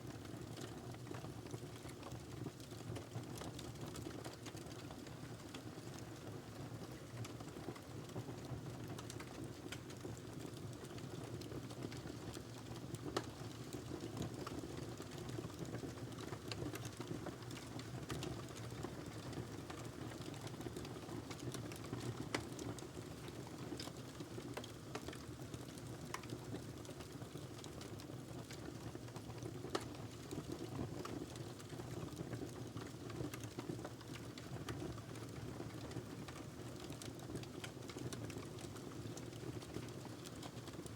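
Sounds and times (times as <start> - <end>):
wood fire crackling: 8.8 - 40.9.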